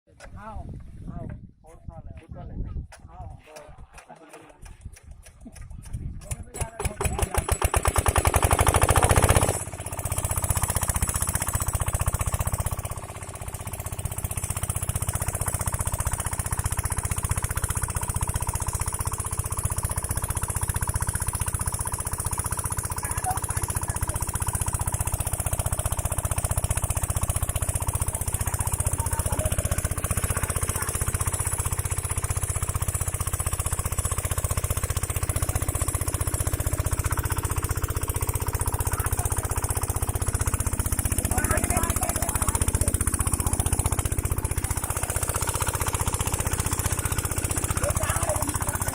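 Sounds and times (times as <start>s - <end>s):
diesel pump engine running: 4.6s - 48.9s.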